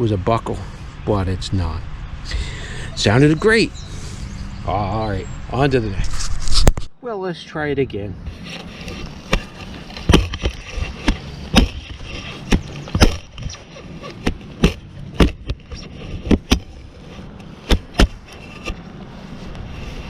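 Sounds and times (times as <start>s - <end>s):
shovel chopping into soil: 8.9s - 16.8s, 17.4s - 18.8s.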